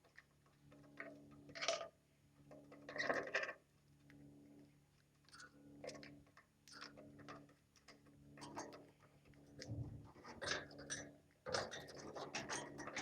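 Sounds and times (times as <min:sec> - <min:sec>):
faint low hum: 0:08.9 - 0:10.3.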